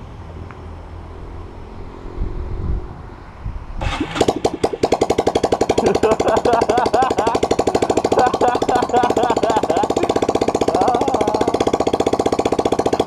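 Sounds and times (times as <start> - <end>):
motorcycle engine idling: 3.8 - 13.0.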